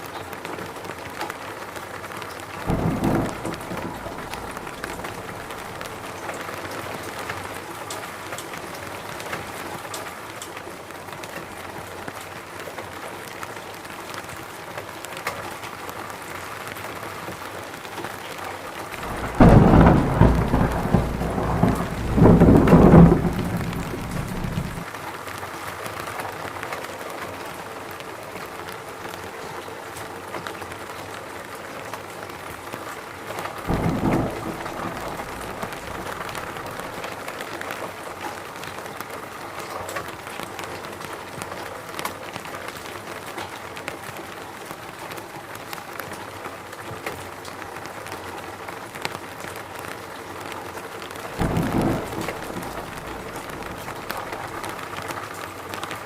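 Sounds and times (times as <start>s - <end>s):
rain falling in a forest: 0.0s - 56.0s
low rumbles: 2.7s - 6.1s, 19.0s - 24.8s, 33.7s - 37.0s, 51.4s - 54.8s.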